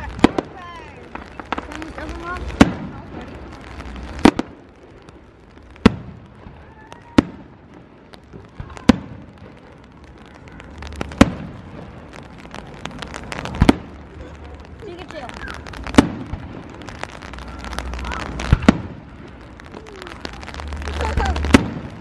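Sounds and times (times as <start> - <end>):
faint firework pops: 0.0 - 22.0
firework bangs: 0.0 - 22.0.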